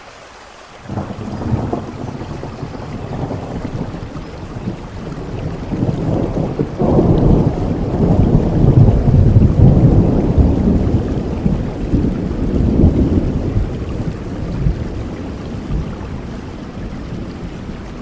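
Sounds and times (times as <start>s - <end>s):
steady rain: 0.0s - 18.0s
thunder rumbling: 0.9s - 18.0s.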